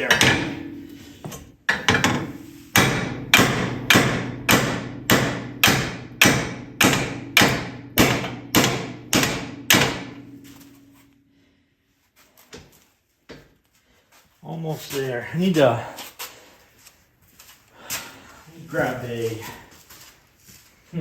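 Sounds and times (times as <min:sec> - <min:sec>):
hammer striking steel: 0:00.0 - 0:11.2.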